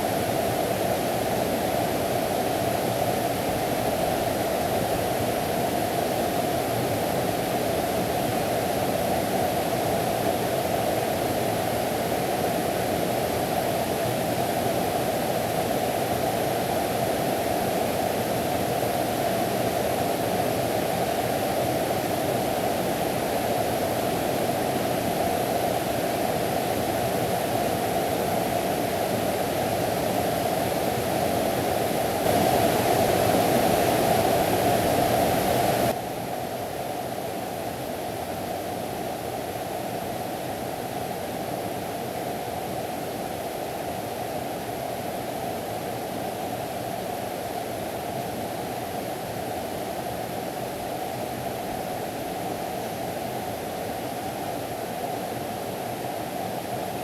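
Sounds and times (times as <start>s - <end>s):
stream water rushing: 19.6s - 36.0s.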